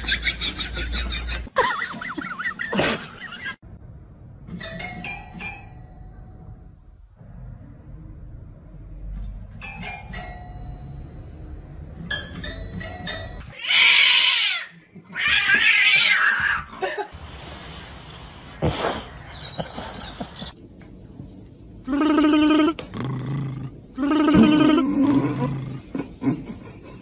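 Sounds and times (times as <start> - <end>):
harsh cat cries: 13.6 - 16.7.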